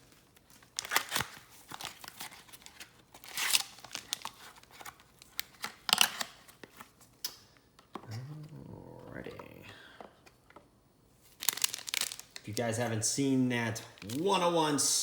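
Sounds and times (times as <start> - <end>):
wrapper tearing and crinkling: 0.1 - 6.6, 11.3 - 12.6, 13.8 - 14.6.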